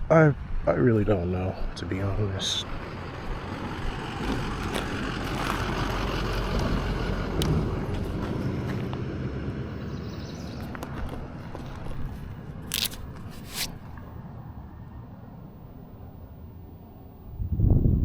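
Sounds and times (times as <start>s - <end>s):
wind rumble on microphone: 0.0s - 18.0s
tyre noise: 1.7s - 9.2s, 10.2s - 13.9s.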